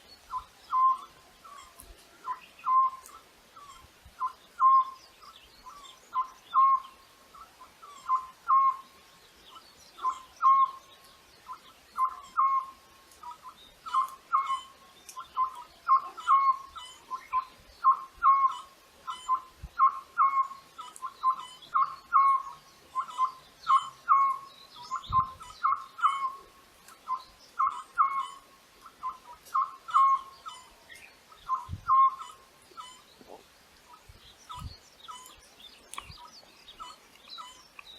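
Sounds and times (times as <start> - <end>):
bird calling: 0.0 - 37.9
faint small birds chirping: 0.0 - 37.9.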